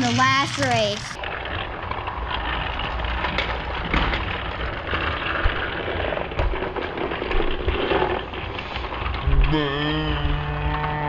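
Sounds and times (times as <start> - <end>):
toy trains rattling on plastic track: 0.0 - 9.6.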